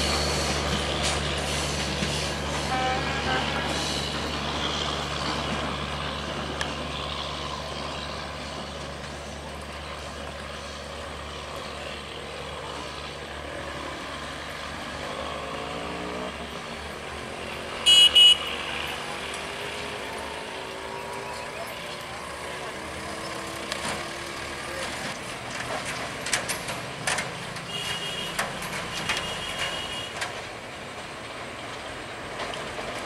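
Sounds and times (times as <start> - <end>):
train rumble and hum: 0.0 - 17.8
train horn blasts: 2.6 - 3.8, 17.8 - 19.1, 27.7 - 30.2.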